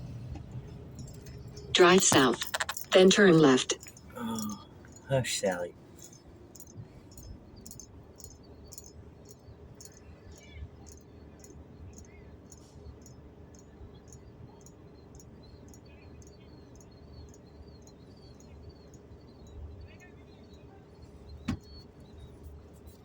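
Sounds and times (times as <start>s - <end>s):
low steady hum: 0.0s - 23.0s
regular clicking: 0.3s - 5.0s.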